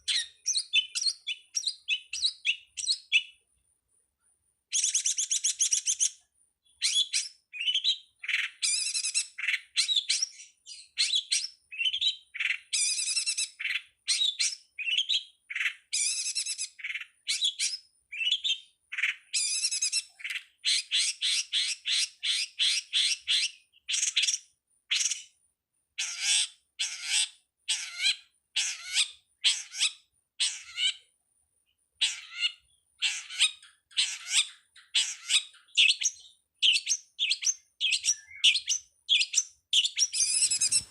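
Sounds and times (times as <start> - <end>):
bird chirping and squawking: 0.0 - 3.3, 6.8 - 25.2, 26.0 - 31.1, 32.0 - 40.9.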